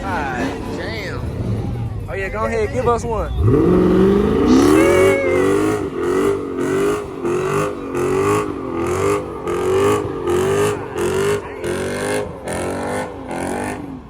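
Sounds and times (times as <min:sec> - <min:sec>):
car engine revving: 0:00.0 - 0:14.0
tyres spinning: 0:00.0 - 0:14.0.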